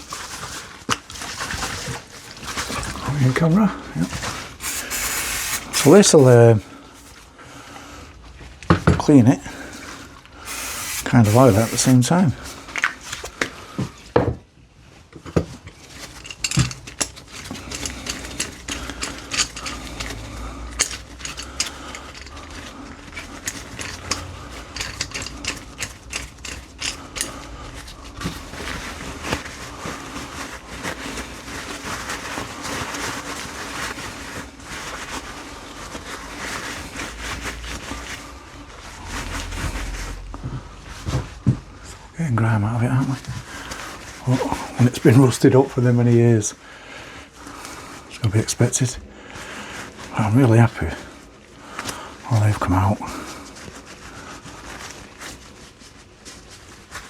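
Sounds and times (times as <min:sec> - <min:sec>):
low rubbing: 0:35.9 - 0:42.2.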